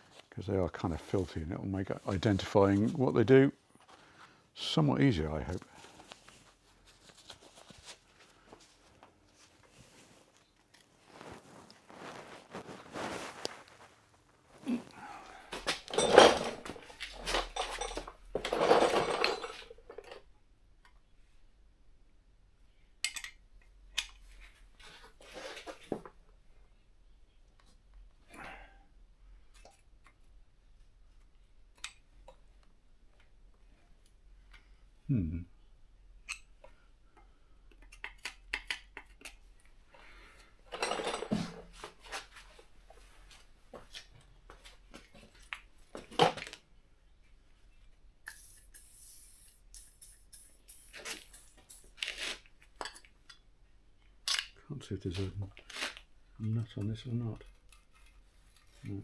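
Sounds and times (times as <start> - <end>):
rustling scrape: 5.6 - 15.0, 50.8 - 52.5
metal tools clattering: 15.7 - 19.7, 40.7 - 41.6.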